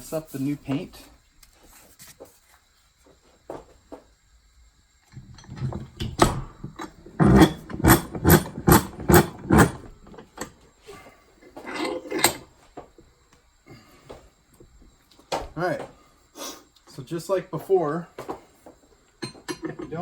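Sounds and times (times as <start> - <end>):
metal tools clunking: 5.1 - 12.8, 19.2 - 20.0.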